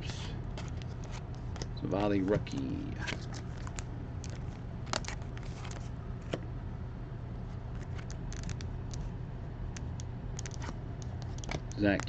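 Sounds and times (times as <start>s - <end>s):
low hum: 0.0s - 12.0s
trading cards being flipped: 0.5s - 6.4s, 7.7s - 9.1s, 9.8s - 12.0s.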